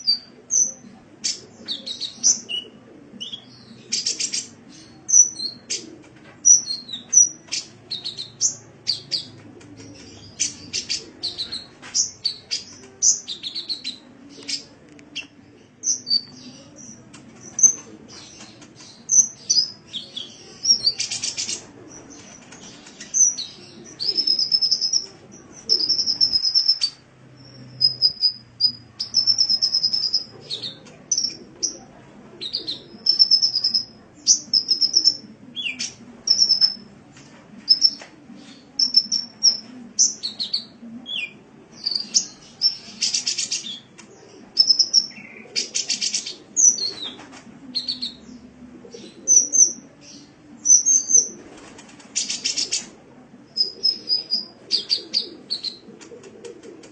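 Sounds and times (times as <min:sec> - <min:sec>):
bird chirping and trilling: 0:18.4 - 0:31.4, 0:32.4 - 0:36.8, 0:44.6 - 0:47.1.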